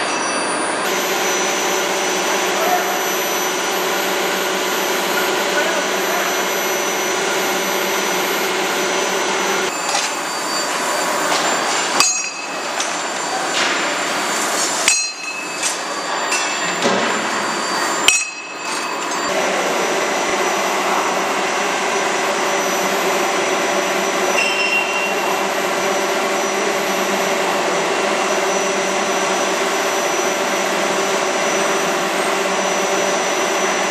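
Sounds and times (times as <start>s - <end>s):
forging machine running: 0.0s - 33.9s
metallic ringing: 9.7s - 19.3s
metal-on-metal hammer blows: 9.9s - 13.9s, 14.8s - 17.2s, 18.0s - 19.3s.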